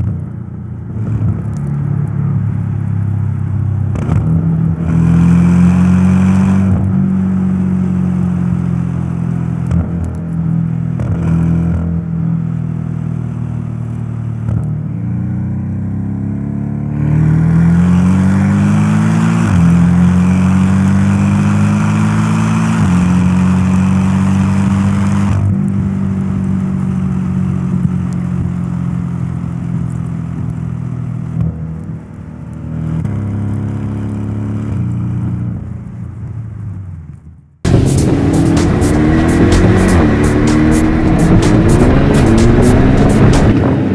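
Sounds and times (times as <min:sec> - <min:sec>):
car engine accelerating: 0:03.9 - 0:12.2, 0:13.1 - 0:27.5, 0:37.7 - 0:43.9.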